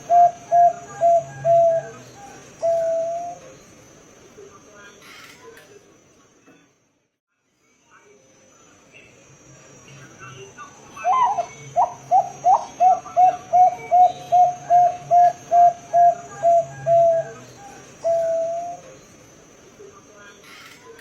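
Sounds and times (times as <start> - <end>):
dove cooing: 0.0 - 3.5, 11.0 - 19.0.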